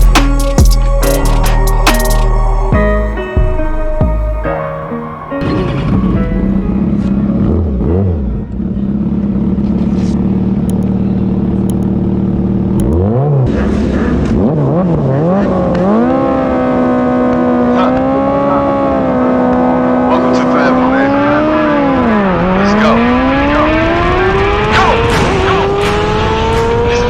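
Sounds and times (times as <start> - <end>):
motorcycle engine at high revs: 7.0 - 27.0.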